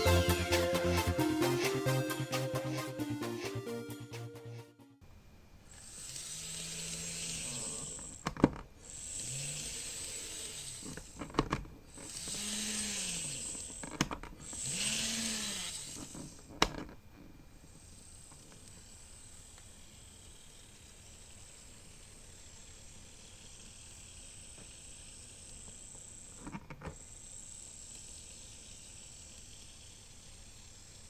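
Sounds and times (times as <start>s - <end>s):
hiss: 5.7s - 8.2s, 8.8s - 11.0s, 27.0s - 31.0s
model train motor humming: 5.7s - 16.8s, 17.6s - 31.0s.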